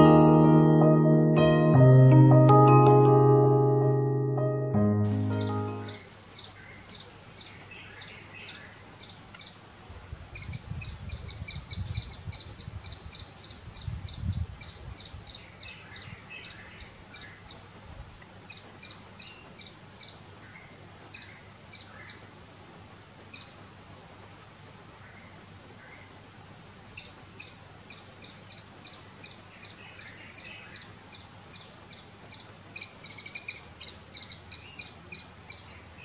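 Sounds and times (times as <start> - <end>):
small birds chirping: 5.1 - 9.7, 10.3 - 22.4, 23.2 - 23.6, 25.0 - 36.0.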